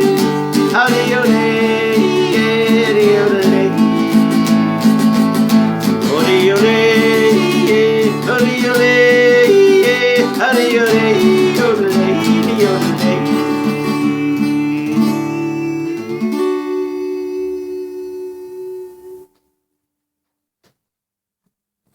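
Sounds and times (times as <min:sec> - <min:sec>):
gliding melody line: 0:00.0 - 0:16.2
acoustic guitar: 0:00.0 - 0:19.4.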